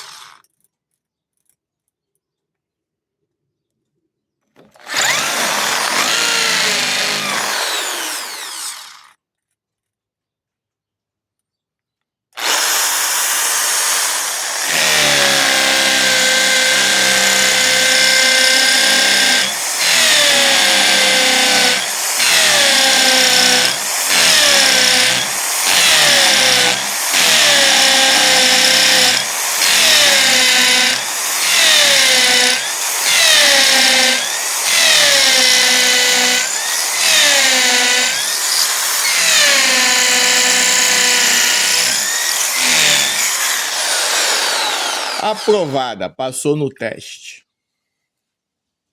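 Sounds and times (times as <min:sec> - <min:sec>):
electric drill boring into concrete: 0:00.0 - 0:00.5, 0:04.8 - 0:09.2, 0:12.4 - 0:45.8.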